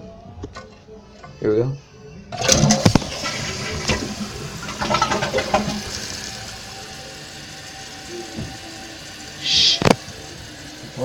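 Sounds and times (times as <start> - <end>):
toilet handle clacks: 2.4 - 5.9
toilet water rushing: 2.4 - 11.0.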